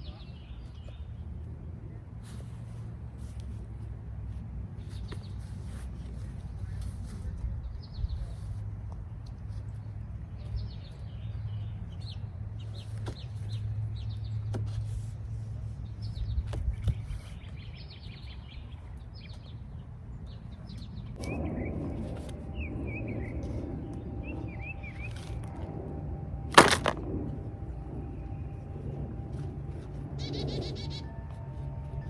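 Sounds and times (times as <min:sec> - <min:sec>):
birds chirping and twittering: 0:00.0 - 0:01.2, 0:04.8 - 0:14.8, 0:15.6 - 0:32.0
low steady rumble: 0:00.0 - 0:32.0
rustling noise: 0:02.2 - 0:10.0, 0:12.8 - 0:18.3, 0:21.2 - 0:32.0
warbling bird calls: 0:21.2 - 0:26.5, 0:27.5 - 0:32.0.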